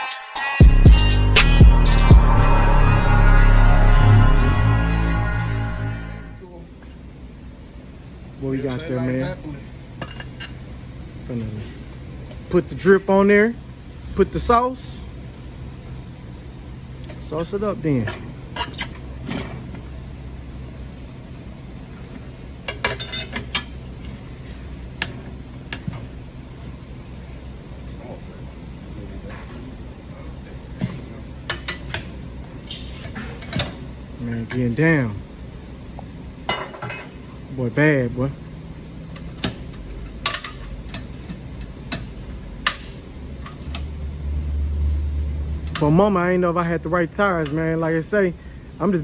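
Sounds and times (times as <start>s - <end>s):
steady low hum: 0.6s - 49.0s
low steady hum: 0.9s - 18.4s.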